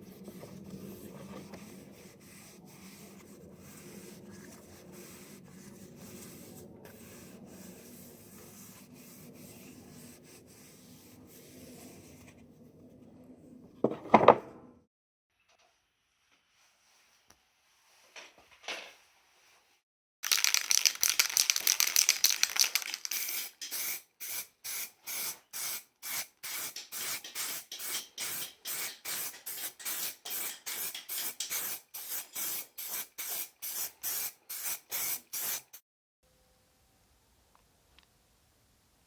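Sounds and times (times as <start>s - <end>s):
spray paint can hissing: 20.2s - 35.8s.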